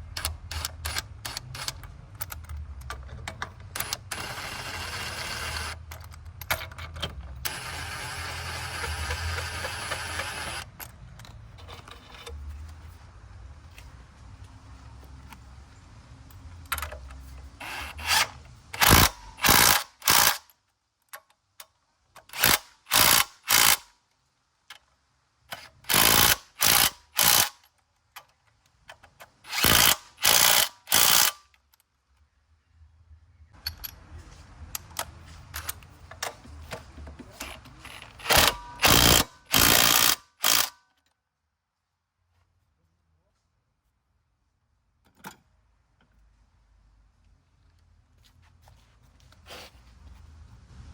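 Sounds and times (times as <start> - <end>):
ratchet wrench clicking: 0.1 - 10.7, 17.6 - 20.5, 22.2 - 23.9, 25.5 - 27.7, 29.5 - 31.6, 37.4 - 40.8.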